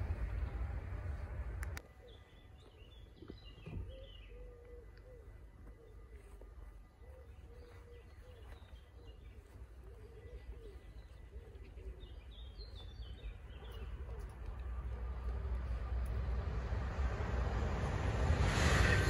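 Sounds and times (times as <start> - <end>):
train rumble: 0.0 - 1.8, 10.6 - 19.0.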